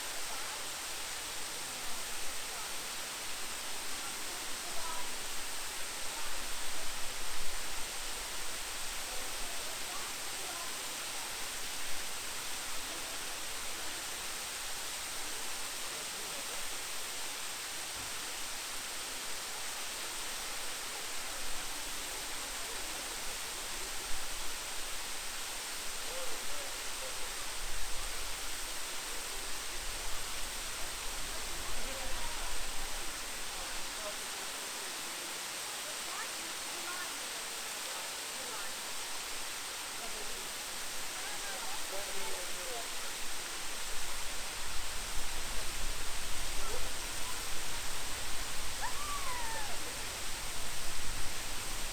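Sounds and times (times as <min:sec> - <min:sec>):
waterfall rushing: 0:00.0 - 0:51.9
wind rumble on microphone: 0:44.0 - 0:51.9.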